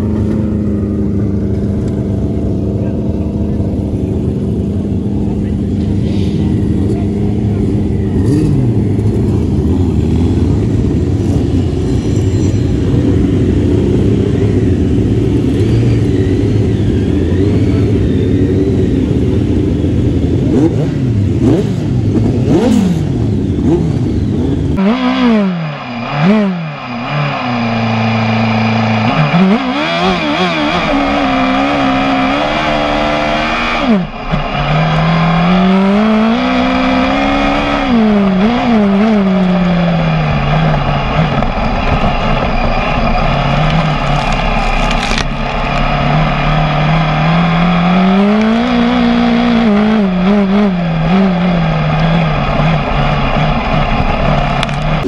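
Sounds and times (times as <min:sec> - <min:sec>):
racing engine shifting gears: 0:00.0 - 0:55.0
sidecar engines revving: 0:00.0 - 0:55.0.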